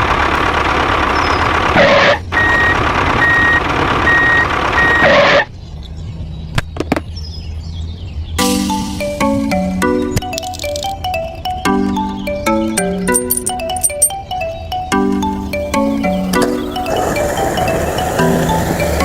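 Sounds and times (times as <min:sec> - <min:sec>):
engine noise: 0:00.0 - 0:05.6, 0:10.2 - 0:19.0
reversing alarm beeping: 0:02.4 - 0:05.2, 0:11.1 - 0:19.0
clicks: 0:10.2 - 0:11.1.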